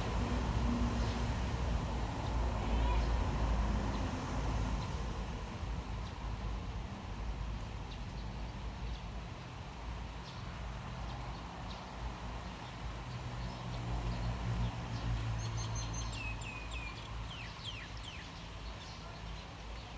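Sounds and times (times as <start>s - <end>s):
rain hiss: 0.0s - 19.9s.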